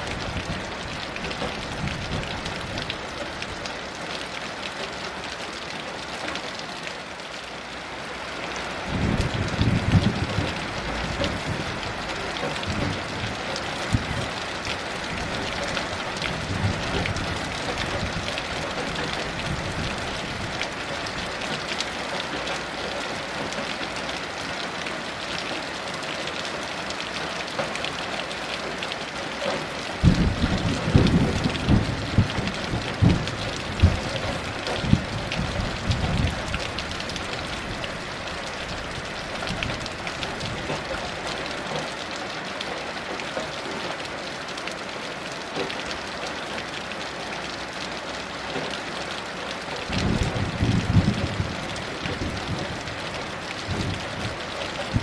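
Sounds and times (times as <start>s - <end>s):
heavy rain falling: 0.0s - 55.0s
thunder rumbling: 8.9s - 14.4s, 30.0s - 38.0s, 49.9s - 55.0s.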